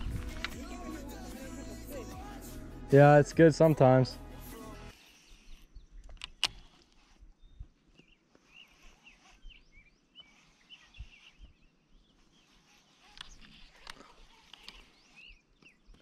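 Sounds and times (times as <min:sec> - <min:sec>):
small birds chirping: 0:04.6 - 0:16.0.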